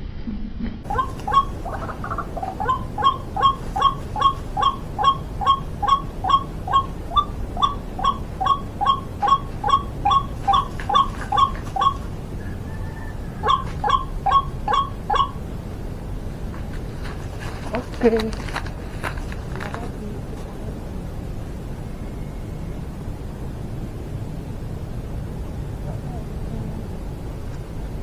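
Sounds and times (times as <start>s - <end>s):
waterhen repeated call: 0.9s - 15.5s.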